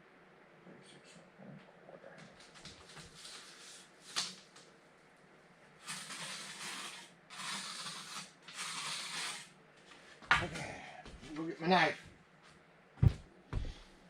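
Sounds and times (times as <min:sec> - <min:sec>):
rough scraping strokes: 0:05.8 - 0:09.5.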